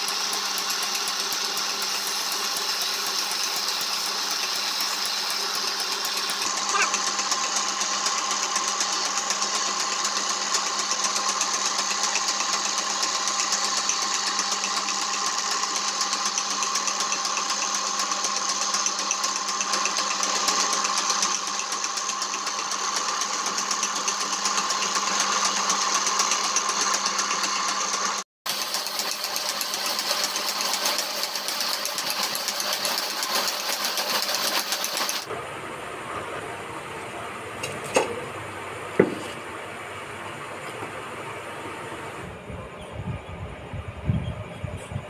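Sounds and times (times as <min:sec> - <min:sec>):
small power tool whining: 0:00.0 - 0:35.4.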